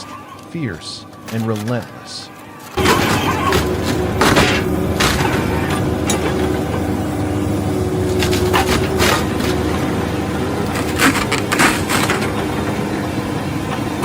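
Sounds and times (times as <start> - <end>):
stump grinding machine running: 2.8 - 14.0
wood cracking and snapping: 10.6 - 12.4.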